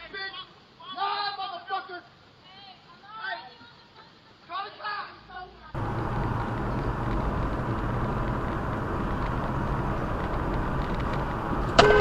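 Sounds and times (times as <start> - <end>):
car driving road noise: 5.7 - 12.0
car horn held: 11.7 - 12.0.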